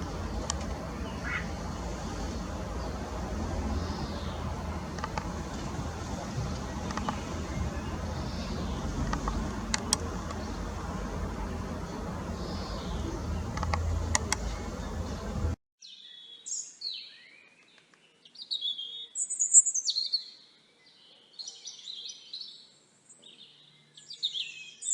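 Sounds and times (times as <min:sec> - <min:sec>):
sharp clicks: 0:00.0 - 0:00.8, 0:04.8 - 0:10.6, 0:12.9 - 0:15.0
low rumble: 0:00.0 - 0:15.6
songbird chirping: 0:00.0 - 0:24.9.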